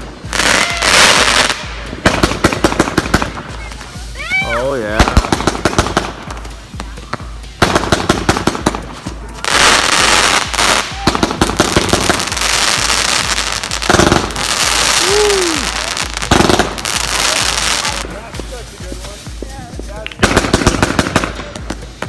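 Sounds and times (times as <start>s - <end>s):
dense crackle of firework bursts: 0.0s - 22.0s
firework cracks: 0.0s - 22.0s.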